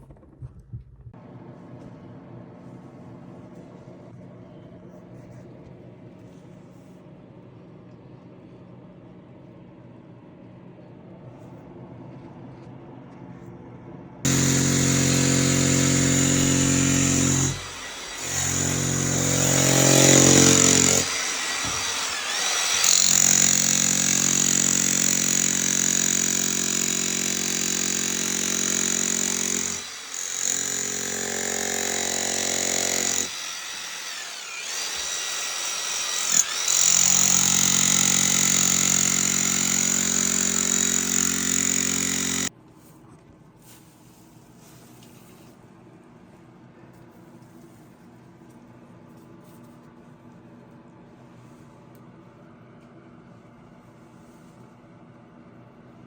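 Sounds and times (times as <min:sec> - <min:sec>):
power tool breaking concrete: 0:14.3 - 0:42.5.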